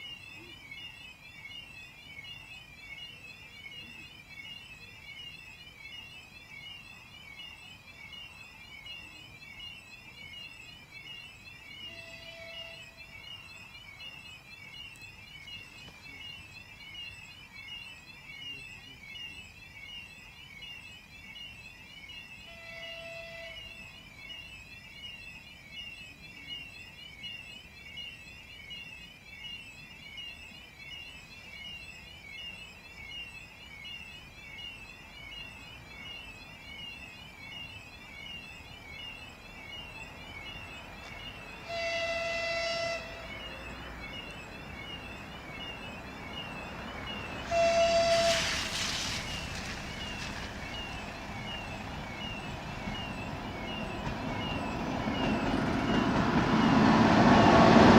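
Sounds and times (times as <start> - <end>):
warbling electronic warning signal: 0.0 - 57.9
locomotive horn blasts: 11.9 - 13.0, 22.5 - 23.8, 41.6 - 43.5, 47.4 - 48.8
train running noise: 39.2 - 57.9.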